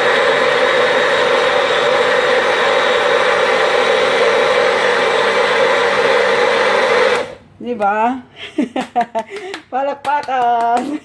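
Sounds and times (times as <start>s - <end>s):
electric blender motor whirring: 0.0s - 7.4s.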